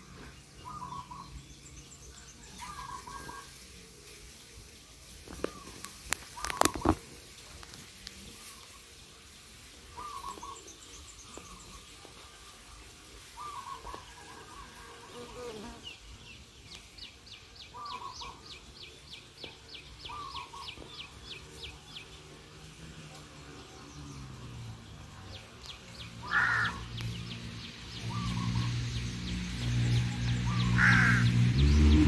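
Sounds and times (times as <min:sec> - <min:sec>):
bird hooting: 0:00.6 - 0:01.2, 0:26.2 - 0:26.8, 0:30.5 - 0:31.4.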